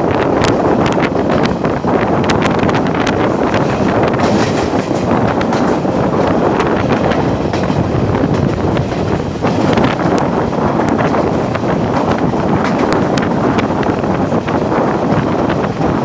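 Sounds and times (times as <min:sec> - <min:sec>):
sharp clicks of train: 0:00.0 - 0:16.0
train rushing on rails: 0:00.0 - 0:16.0
wind buffeting microphone: 0:00.0 - 0:16.0.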